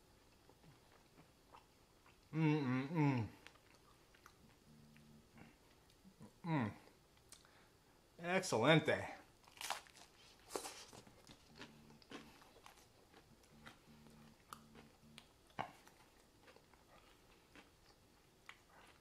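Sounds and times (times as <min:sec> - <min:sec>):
faint chewing of pizza: 0:00.0 - 0:07.8, 0:09.2 - 0:19.0.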